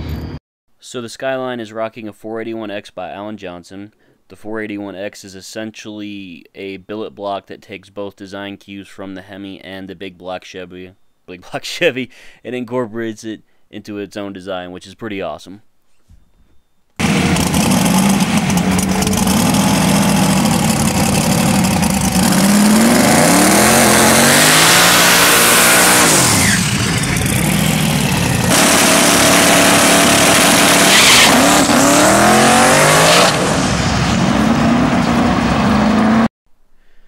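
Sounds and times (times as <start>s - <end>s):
race car engine at high revs: 17.0s - 36.3s.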